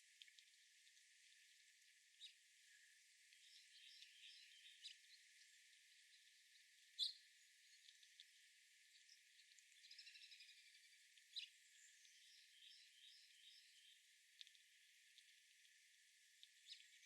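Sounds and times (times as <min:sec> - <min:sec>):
small birds chirping: 0:03.3 - 0:14.6, 0:16.4 - 0:17.0.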